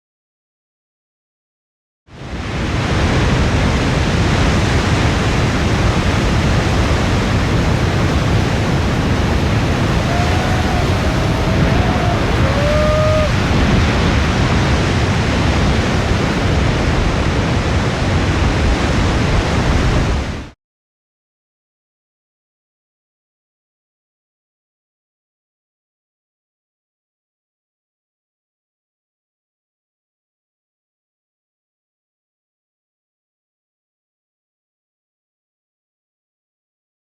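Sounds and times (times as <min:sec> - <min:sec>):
wind roaring: 0:02.2 - 0:20.5
big-wave surf pounding: 0:02.2 - 0:20.6.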